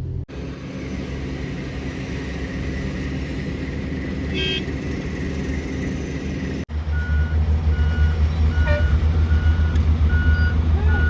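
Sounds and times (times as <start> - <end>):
diesel engine rumble: 0.0 - 11.0
reversing alarm beeping: 6.9 - 11.0.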